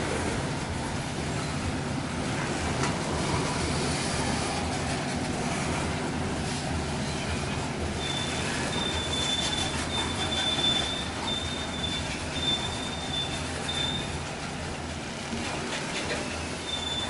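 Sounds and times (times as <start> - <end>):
train rumbling on rails: 0.0 - 17.0
train wheel squeal: 6.9 - 14.4, 15.4 - 17.0.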